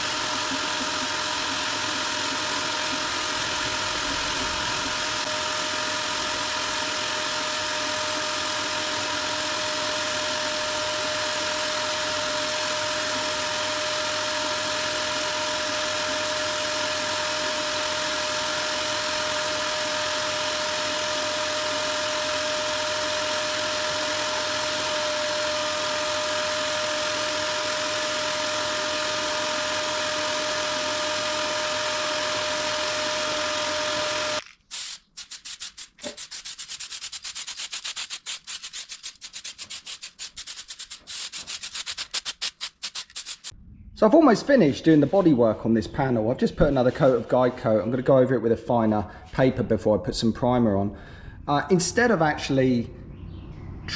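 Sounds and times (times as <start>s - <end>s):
power sander running: 0.0s - 34.9s
hand-sanding strokes: 34.7s - 43.6s.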